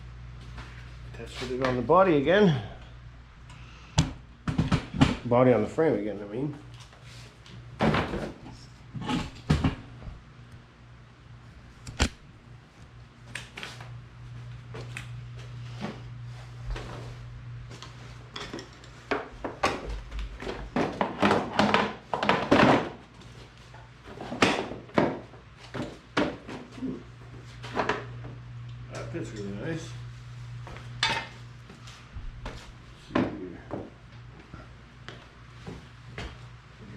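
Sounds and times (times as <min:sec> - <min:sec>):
sharp click: 0:11.8 - 0:12.2.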